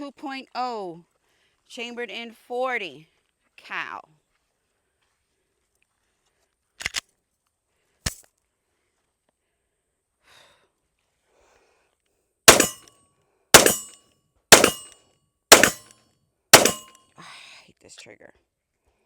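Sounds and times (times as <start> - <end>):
small click: 6.8 - 7.0
pistol shots: 12.5 - 12.8, 13.6 - 13.9, 14.5 - 14.9, 15.5 - 15.9, 16.6 - 16.9.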